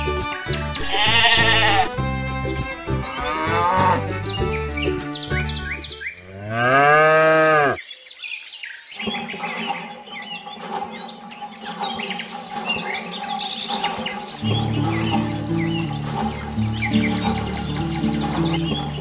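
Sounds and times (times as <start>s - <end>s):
birds chirping: 2.8s - 19.0s
cow mooing: 3.2s - 4.1s, 6.2s - 7.8s.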